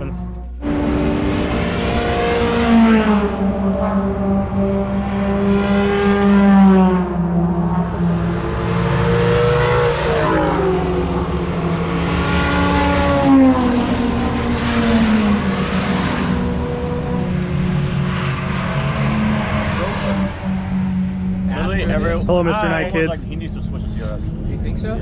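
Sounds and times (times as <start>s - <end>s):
engine notes gliding down: 0.0s - 25.0s
race car engines droning: 0.0s - 25.0s.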